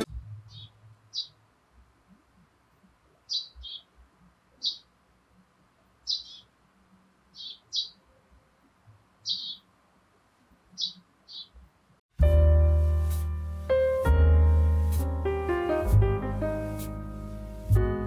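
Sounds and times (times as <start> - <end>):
small bird chirping: 0.4 - 1.4, 3.1 - 5.0, 5.9 - 6.6, 7.2 - 9.8, 10.6 - 11.7.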